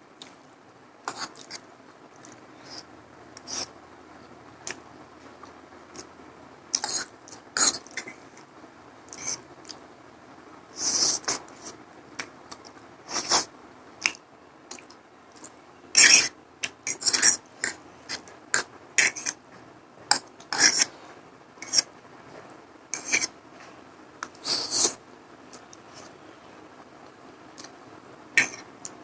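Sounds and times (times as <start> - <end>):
slurping and chewing: 1.1 - 2.8
utensil scraping a dish: 16.9 - 18.2, 20.1 - 21.0, 21.6 - 21.9, 22.9 - 23.4.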